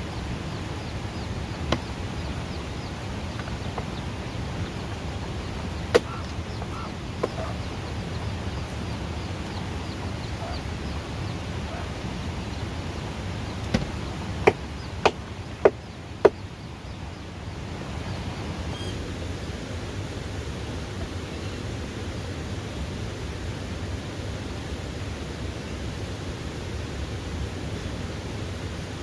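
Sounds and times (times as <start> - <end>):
steady outdoor noise: 0.0 - 29.0
sharp knocks: 5.9 - 7.6, 13.6 - 16.4.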